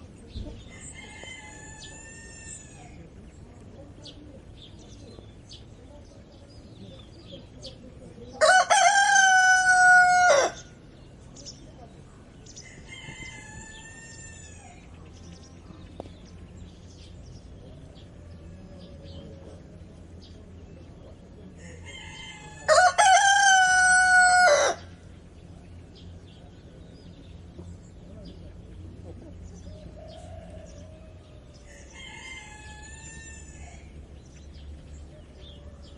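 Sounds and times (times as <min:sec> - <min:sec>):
rooster crowing: 0:08.4 - 0:10.7, 0:21.6 - 0:24.9, 0:29.9 - 0:33.9.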